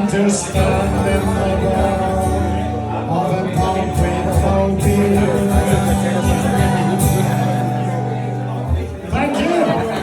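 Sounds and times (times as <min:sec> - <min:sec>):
person singing: 0:00.0 - 0:07.9
folk band playing: 0:00.0 - 0:10.0.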